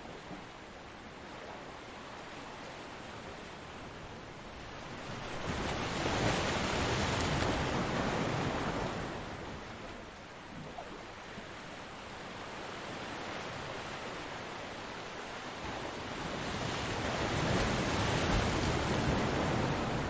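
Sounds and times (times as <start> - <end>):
ocean waves breaking: 4.8 - 11.5, 15.6 - 20.0.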